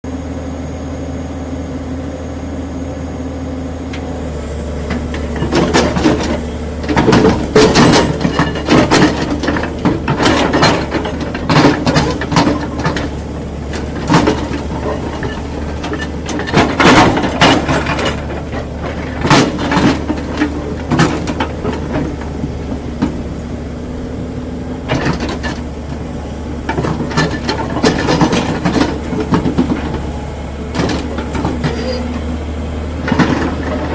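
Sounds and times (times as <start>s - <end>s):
excavator diesel engine running: 0.1s - 33.9s
loud metal clanks and knocks: 5.2s - 22.2s, 26.6s - 32.3s.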